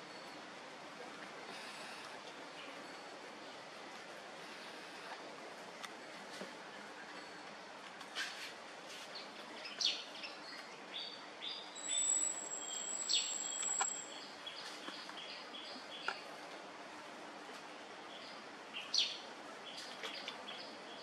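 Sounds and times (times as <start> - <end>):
faint outdoor hiss: 0.0 - 21.0
birds chirping: 9.2 - 16.3.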